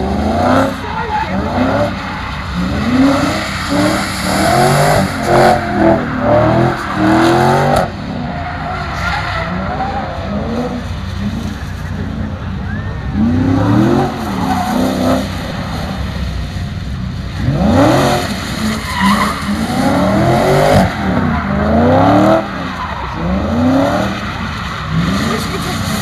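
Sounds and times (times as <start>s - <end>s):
car engine revving hard: 0.0s - 8.3s, 17.3s - 26.0s
tyres skidding on wet surface: 0.0s - 26.0s.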